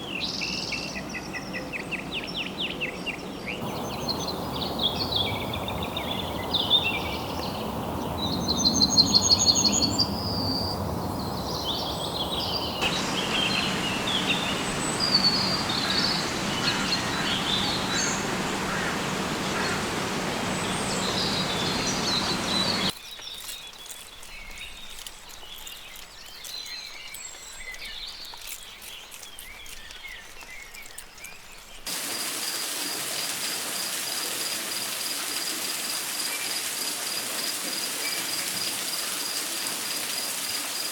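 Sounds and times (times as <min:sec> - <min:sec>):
background hiss: 0:03.6 - 0:08.6, 0:11.6 - 0:22.9
pulsing high insect call: 0:03.6 - 0:10.3, 0:11.3 - 0:22.9
birds chirping and calling: 0:03.6 - 0:22.9.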